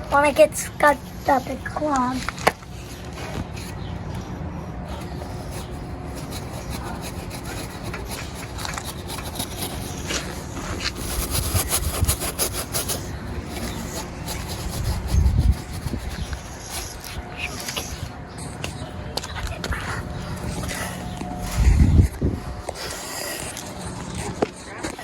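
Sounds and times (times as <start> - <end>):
steady low rumble: 13.0 - 24.7.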